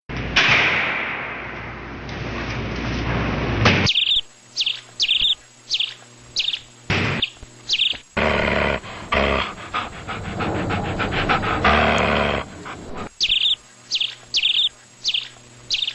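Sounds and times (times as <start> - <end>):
small bird chirping: 3.9 - 8.1, 8.8 - 15.9
scratchy rapid pulses: 4.4 - 15.9.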